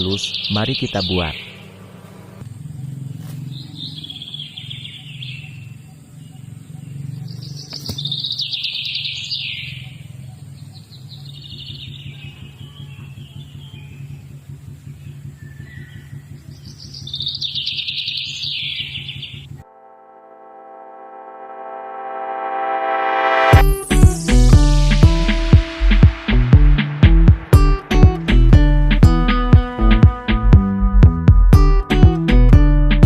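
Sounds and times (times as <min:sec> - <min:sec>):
songbirds singing: 0:00.0 - 0:19.6
steady low hum: 0:19.4 - 0:31.7.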